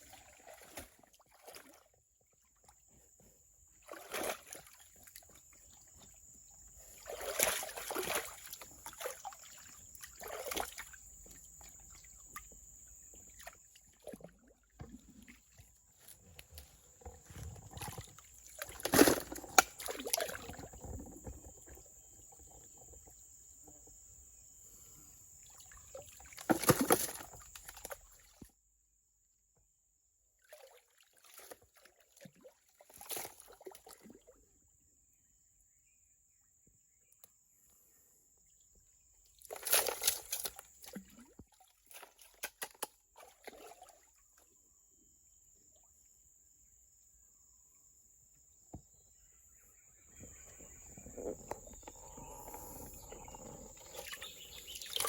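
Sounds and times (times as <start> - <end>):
water sloshing and splashing: 0.0 - 23.2, 25.4 - 28.5, 30.4 - 34.4, 39.4 - 44.4, 50.1 - 55.0.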